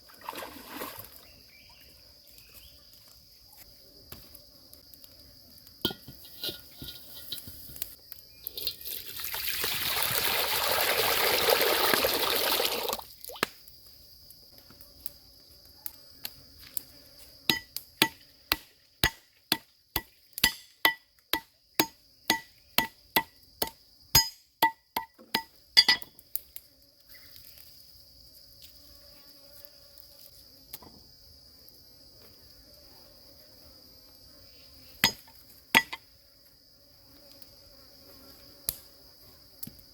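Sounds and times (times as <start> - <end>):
insects droning: 0.0 - 39.9
liquid pouring: 8.5 - 13.1.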